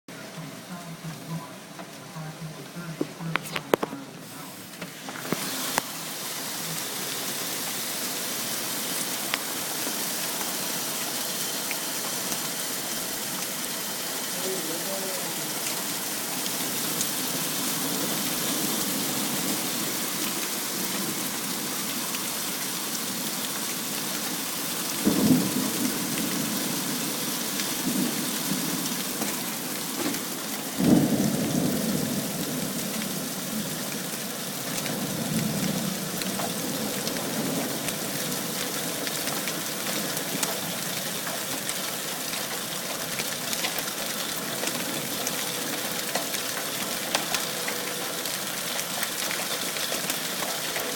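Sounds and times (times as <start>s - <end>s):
hail falling hard: 3.3s - 50.9s
thunder rumbling: 25.0s - 39.4s.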